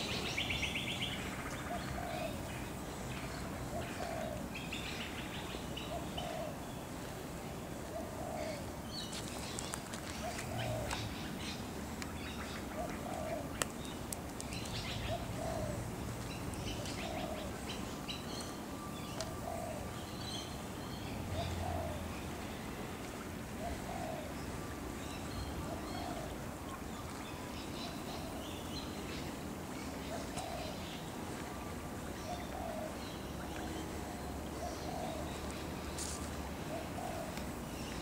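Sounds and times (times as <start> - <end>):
small birds chirping: 8.0 - 22.7.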